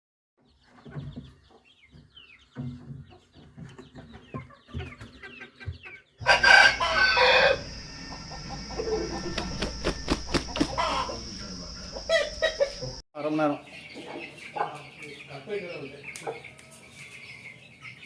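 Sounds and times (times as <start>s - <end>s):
chickens clucking: 0.4s - 18.0s
rooster crowing: 6.2s - 13.0s.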